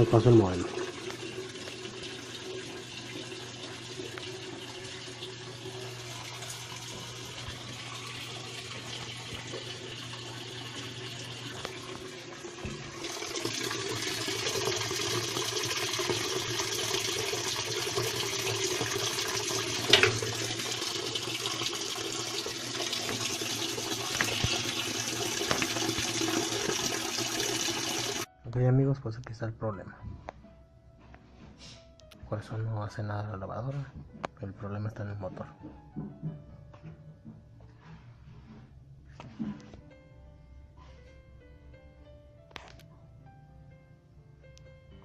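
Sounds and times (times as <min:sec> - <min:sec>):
water rushing into washing machine: 0:00.0 - 0:28.3.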